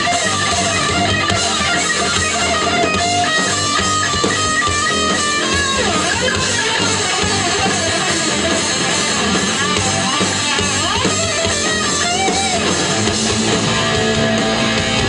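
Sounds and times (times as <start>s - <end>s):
bass and drums: 0.0s - 15.0s
electric guitar lead: 0.0s - 15.0s.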